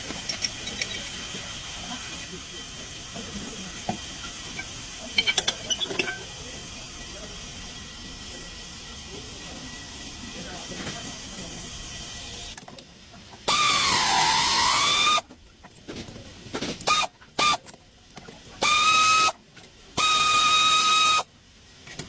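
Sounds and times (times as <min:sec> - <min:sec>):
hiss: 0:13.4 - 0:15.3, 0:16.8 - 0:17.6, 0:18.6 - 0:22.0.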